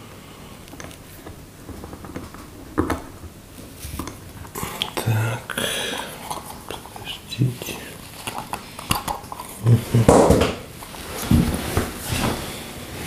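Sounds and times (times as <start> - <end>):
hands rustling: 3.6 - 13.0.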